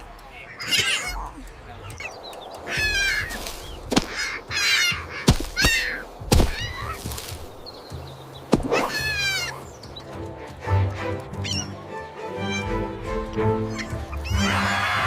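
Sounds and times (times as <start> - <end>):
sharp clicks: 0.0 - 8.7
high quavering animal cries: 0.3 - 7.4, 8.6 - 9.7, 11.4 - 11.8, 12.4 - 12.8, 13.6 - 15.0.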